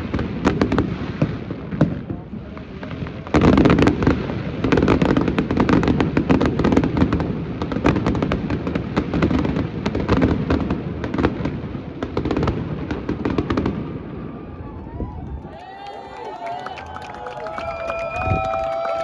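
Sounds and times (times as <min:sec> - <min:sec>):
fireworks bangs and crackles: 0:00.0 - 0:15.1.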